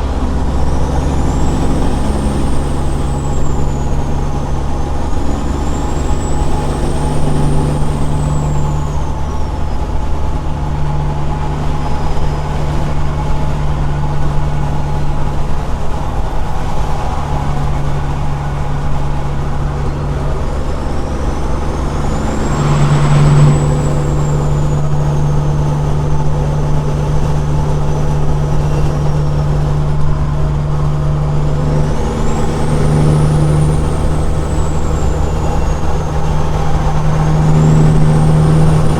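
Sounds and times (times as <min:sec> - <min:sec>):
diesel truck engine droning: 0:00.0 - 0:38.9
high whistle: 0:20.6 - 0:25.4.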